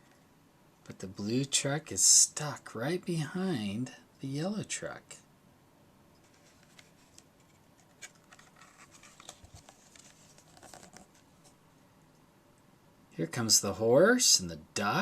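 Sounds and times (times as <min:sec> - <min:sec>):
faint small clicks and scratches: 0:06.2 - 0:12.2.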